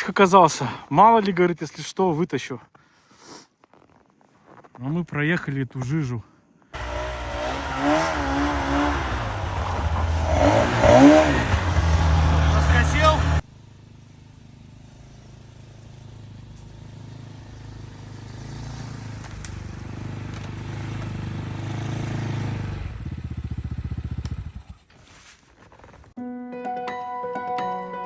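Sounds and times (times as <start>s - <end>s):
snowmobile engine running: 6.8s - 24.8s.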